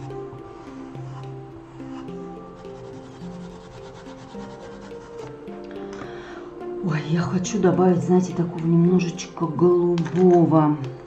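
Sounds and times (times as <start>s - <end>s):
soft background music: 0.0s - 11.0s
drawing tool rubbing on paper: 1.1s - 5.3s.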